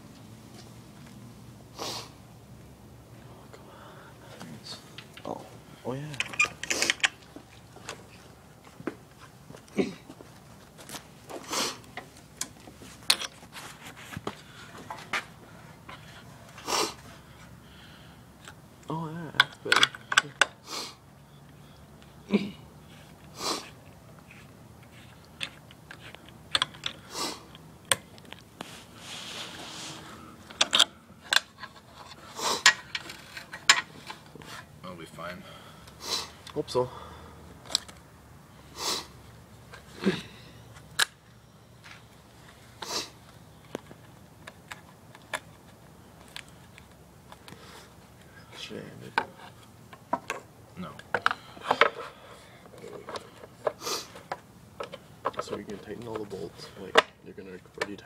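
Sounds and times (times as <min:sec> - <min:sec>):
tools and metal parts clicking: 0:06.1 - 0:07.2.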